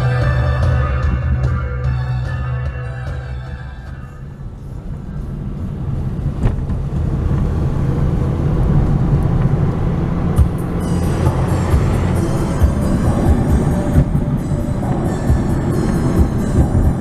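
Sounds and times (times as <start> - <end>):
vehicle rumbling in motion: 0.0 - 17.0.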